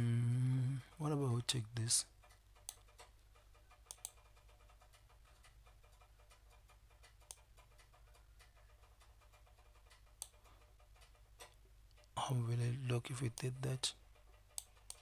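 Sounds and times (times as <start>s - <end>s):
low room hum: 0.0s - 15.0s
computer mouse clicks: 2.3s - 12.0s, 14.5s - 15.0s.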